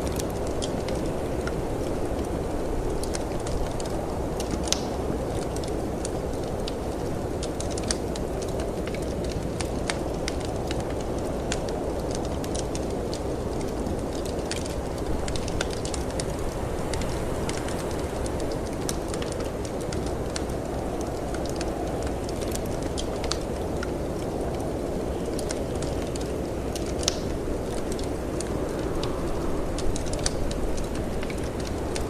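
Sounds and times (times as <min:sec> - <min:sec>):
wood fire crackling: 0:00.0 - 0:32.0
storm wind rushing: 0:27.3 - 0:32.0.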